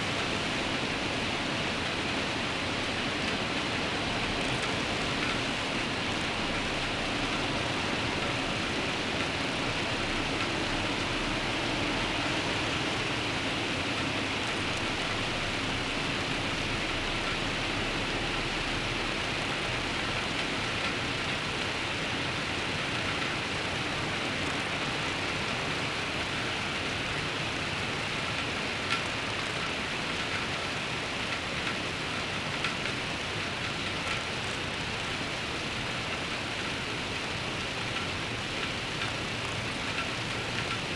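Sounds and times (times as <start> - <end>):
rain falling: 0.1 - 40.9.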